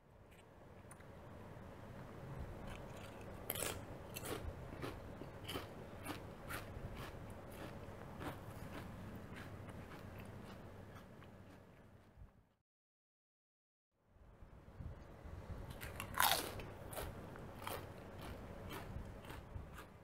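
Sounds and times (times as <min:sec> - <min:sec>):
potato chip crunching: 0:02.6 - 0:10.6, 0:15.8 - 0:19.9.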